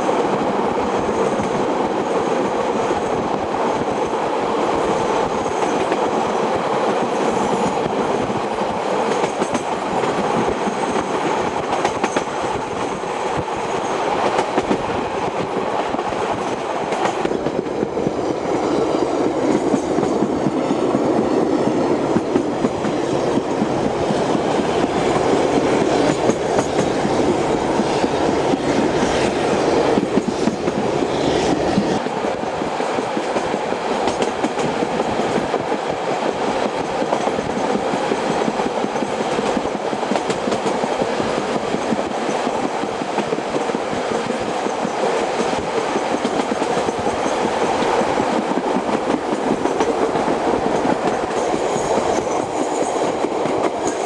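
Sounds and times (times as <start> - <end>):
train carriage running noise: 0.0 - 54.0.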